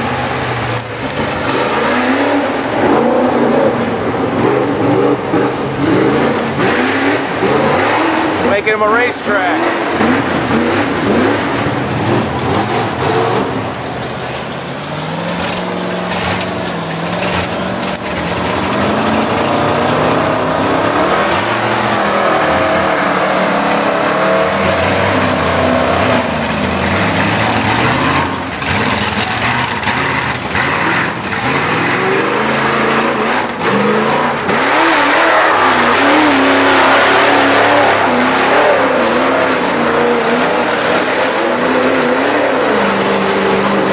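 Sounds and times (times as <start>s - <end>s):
truck engine revving unevenly: 0.0s - 43.9s.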